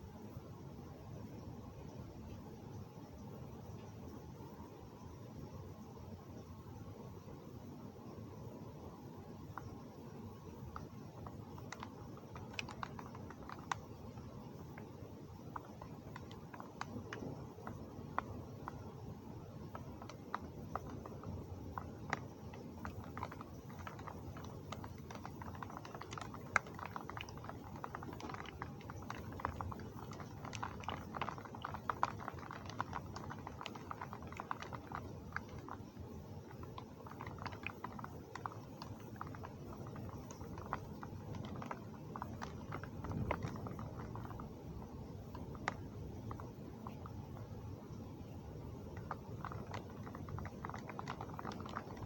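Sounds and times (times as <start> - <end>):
heavy rain on hard surface: 19.6 - 47.0.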